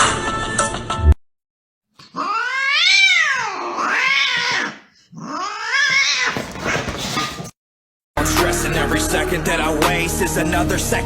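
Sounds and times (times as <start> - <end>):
cat yowling: 2.0 - 7.3.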